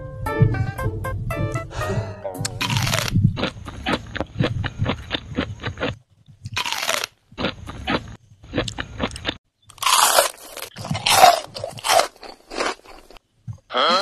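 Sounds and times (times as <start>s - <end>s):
person chewing crunchy food: 2.6s - 13.2s.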